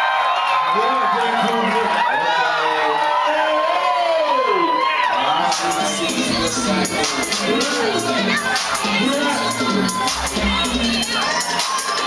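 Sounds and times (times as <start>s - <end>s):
crowd cheering and shouting: 0.0s - 12.0s
hip-hop beat: 5.2s - 12.0s.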